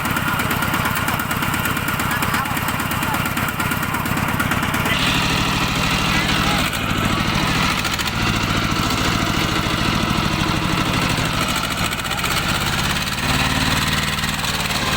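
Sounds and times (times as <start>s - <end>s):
hand tractor engine running: 0.0s - 14.9s.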